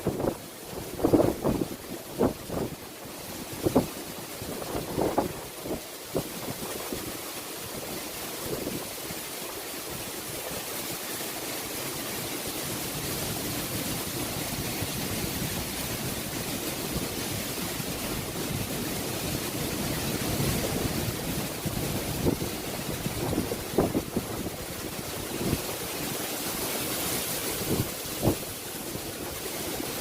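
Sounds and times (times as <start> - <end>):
strong wind: 0.0 - 7.1, 12.9 - 30.0
driving rain: 0.0 - 30.0
wind buffeting microphone: 14.4 - 25.9, 27.6 - 29.4.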